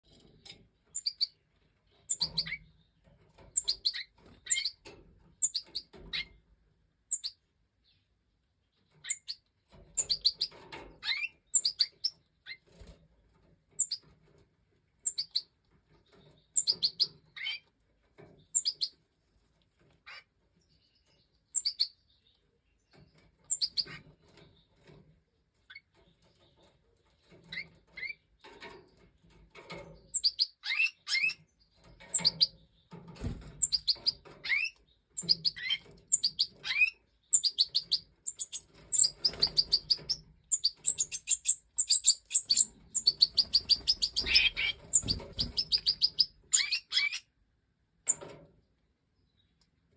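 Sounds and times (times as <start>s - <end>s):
goldfinch chirping: 0.9s - 1.4s, 2.0s - 2.7s, 3.5s - 6.3s, 7.1s - 8.0s, 9.0s - 9.4s, 10.0s - 12.8s, 13.8s - 14.1s, 15.0s - 17.6s, 18.5s - 19.0s, 20.8s - 22.4s, 23.4s - 24.7s, 30.0s - 47.2s.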